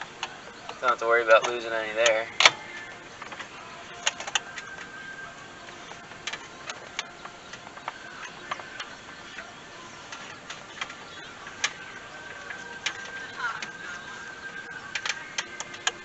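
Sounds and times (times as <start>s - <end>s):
hand tools clicking on metal: 5.6s - 16.0s.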